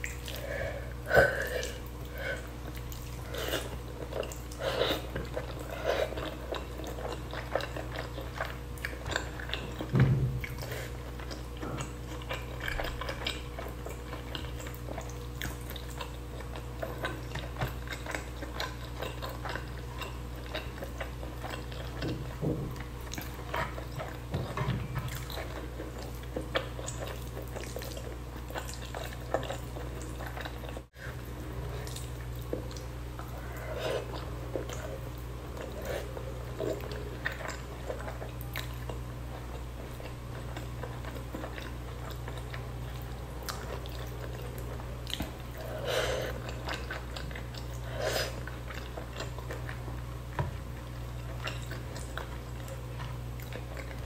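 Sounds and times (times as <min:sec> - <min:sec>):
chewing and mouth sounds: 0:00.0 - 0:54.0.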